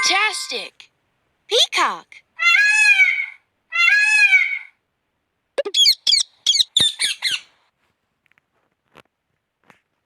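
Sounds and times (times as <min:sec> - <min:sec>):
peacock calling: 0:02.4 - 0:04.8, 0:05.6 - 0:07.5.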